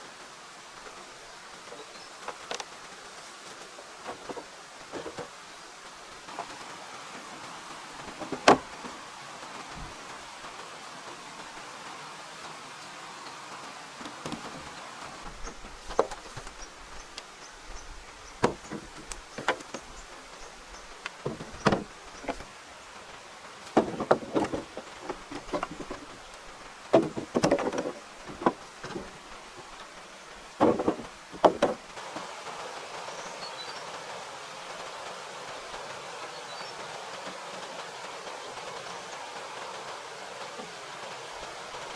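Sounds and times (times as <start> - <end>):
steady background hiss: 0.0 - 41.9
wood knocking and clunking: 4.0 - 5.4, 8.0 - 8.9, 14.0 - 22.5, 23.7 - 32.0.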